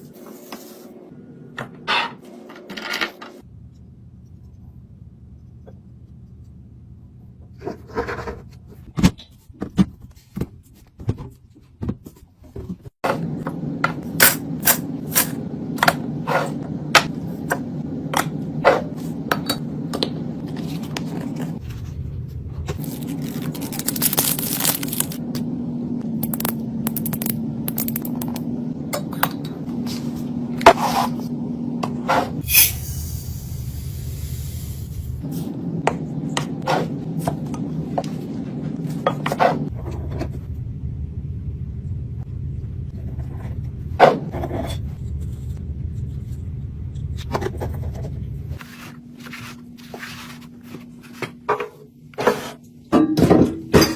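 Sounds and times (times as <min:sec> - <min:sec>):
steady low hum: 0:03.4 - 0:08.9, 0:13.1 - 0:52.9
groceries clicking and knocking: 0:22.7 - 0:25.3, 0:26.2 - 0:28.5.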